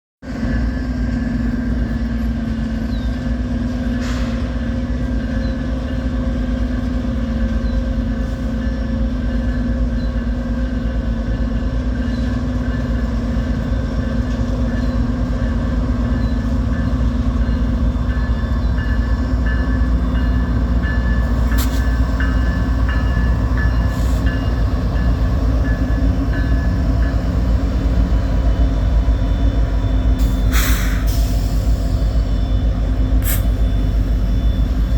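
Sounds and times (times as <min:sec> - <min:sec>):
train rumbling: 0:00.2 - 0:34.9.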